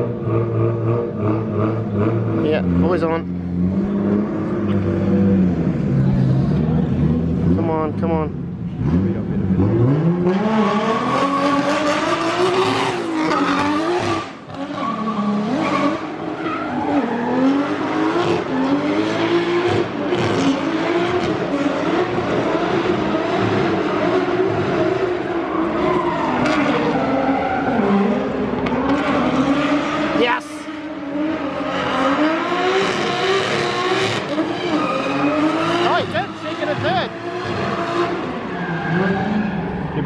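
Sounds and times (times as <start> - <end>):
car engine revving: 0.0 - 40.0
tyre squeal: 10.5 - 18.8, 34.3 - 36.5.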